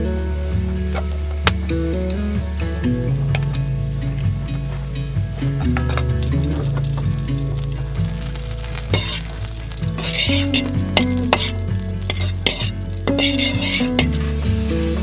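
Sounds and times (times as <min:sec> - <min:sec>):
background music: 0:00.0 - 0:15.0
food sizzling in a pan: 0:03.2 - 0:15.0
utensil stirring and clicking: 0:07.8 - 0:14.1.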